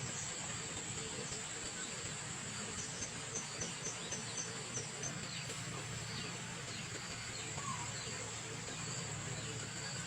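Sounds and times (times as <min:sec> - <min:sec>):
high insect drone: 0:00.0 - 0:10.0
faint bird calls: 0:02.6 - 0:10.0.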